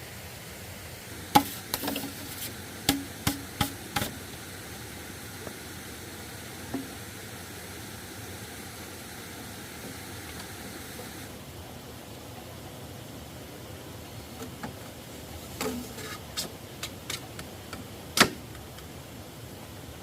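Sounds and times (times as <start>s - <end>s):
background hiss: 0.0s - 20.0s
sharp knocks: 2.9s - 4.2s.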